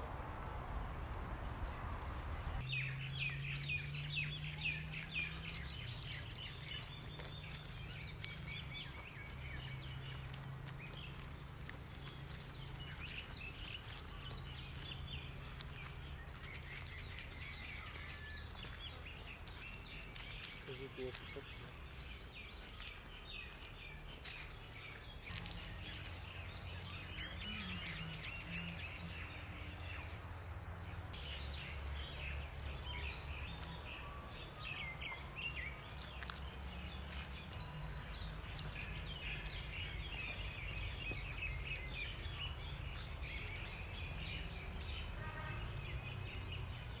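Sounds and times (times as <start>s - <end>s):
low rumble: 0.0s - 2.6s
birds chirping and calling: 2.6s - 47.0s.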